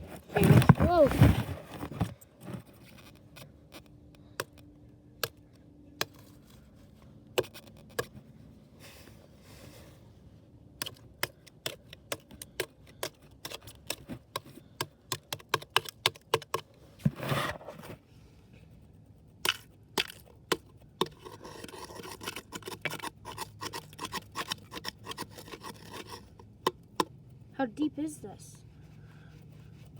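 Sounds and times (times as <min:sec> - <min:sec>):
ice crunching and scraping: 0:00.0 - 0:03.0, 0:21.0 - 0:26.4.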